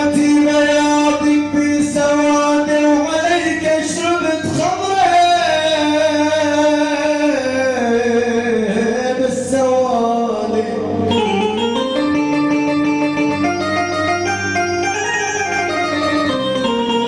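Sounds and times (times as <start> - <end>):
man singing long notes: 0.0 - 12.3
instrumental backing: 0.0 - 17.0.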